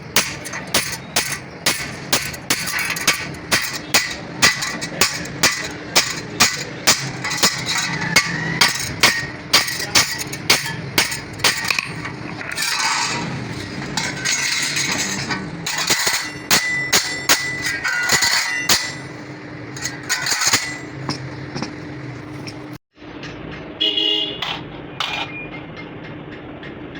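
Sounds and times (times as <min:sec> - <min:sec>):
rough scraping noise: 0:02.3 - 0:22.8.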